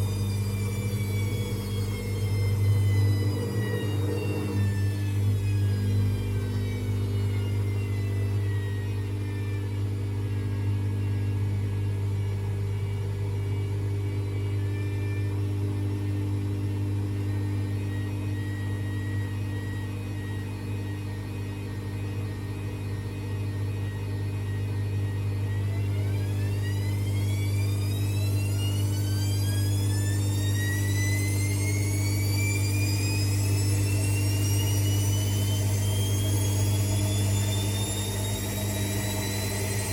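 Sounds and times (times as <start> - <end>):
steady low hum: 0.0 - 39.9
washing machine motor whine: 0.0 - 39.9.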